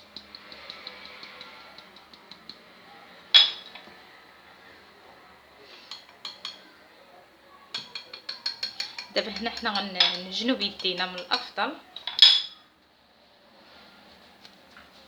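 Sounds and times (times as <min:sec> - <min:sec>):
utensil stirring in a bowl: 0:00.0 - 0:03.8, 0:05.6 - 0:06.8, 0:07.7 - 0:12.2.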